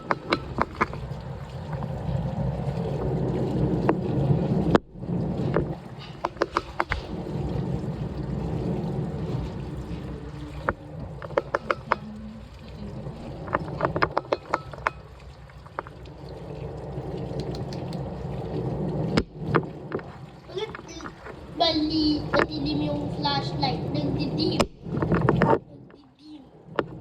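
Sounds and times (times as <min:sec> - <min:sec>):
washing machine running: 0:00.0 - 0:25.6
water sloshing in drum: 0:00.0 - 0:27.0
sharp clicks: 0:17.4 - 0:18.1.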